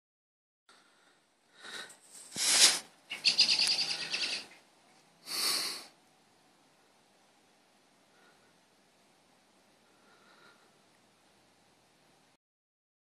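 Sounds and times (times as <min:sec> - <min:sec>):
bird chattering call: 0:03.1 - 0:04.5.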